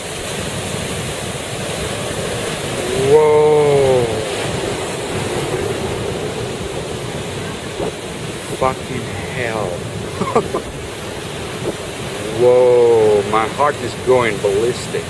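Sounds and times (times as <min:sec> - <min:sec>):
ocean surf rushing: 0:00.0 - 0:15.0
wind buffeting microphone: 0:00.0 - 0:15.0
man shouting whoa: 0:02.8 - 0:04.4, 0:12.2 - 0:13.4.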